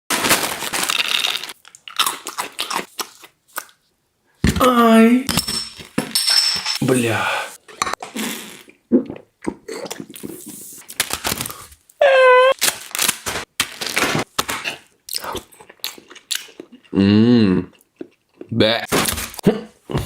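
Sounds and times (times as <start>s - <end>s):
crunchy snack being chewed: 0.6s - 3.8s
person speaking: 6.8s - 7.6s.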